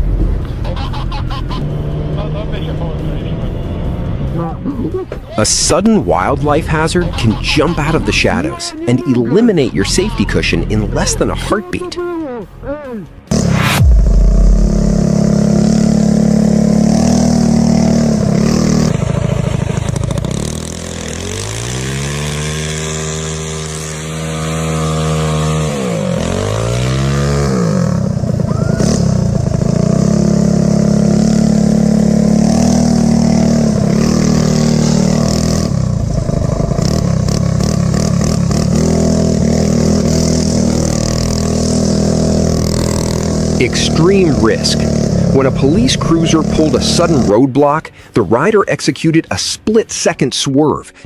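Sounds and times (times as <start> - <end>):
motorcycle engine running: 13.3 - 48.0.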